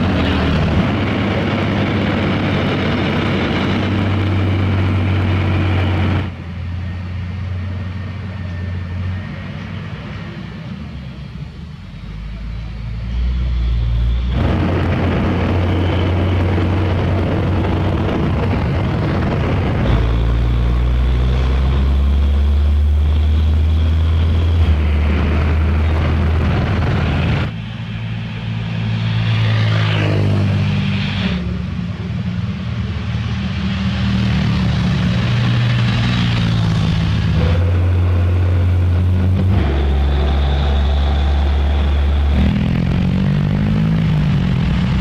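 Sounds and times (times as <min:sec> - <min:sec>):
heavy diesel engines running: 0:00.0 - 0:45.0
short rising whine: 0:12.0 - 0:31.8, 0:34.0 - 0:45.0.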